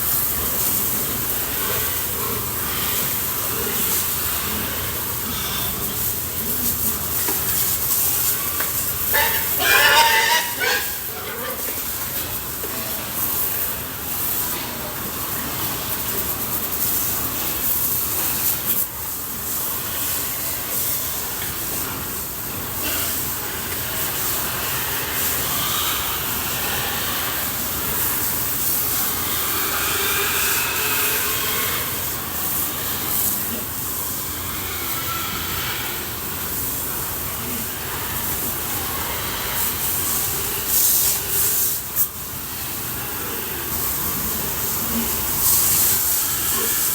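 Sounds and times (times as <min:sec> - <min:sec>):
water jet spraying with hiss: 0:00.0 - 0:46.9.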